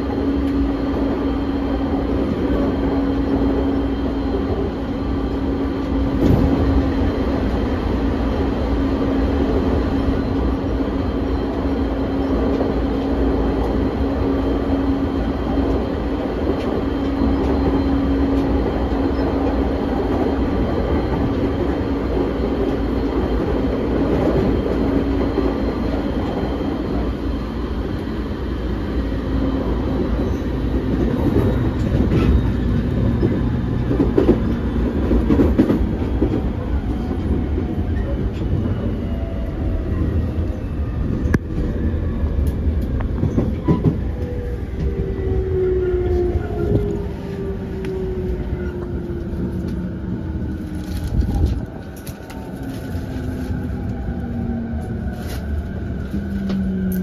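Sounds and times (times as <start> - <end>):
wheel and track rumble: 0.0 - 57.0
rail-joint clicks and knocks: 42.4 - 45.0.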